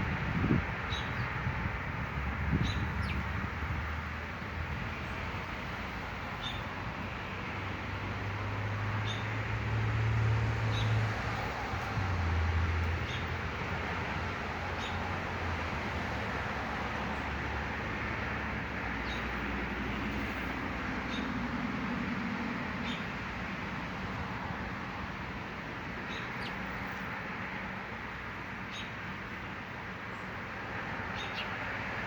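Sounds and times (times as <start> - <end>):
outdoor background rumble: 0.0 - 32.0
small birds chirping: 26.0 - 27.1, 31.1 - 31.6.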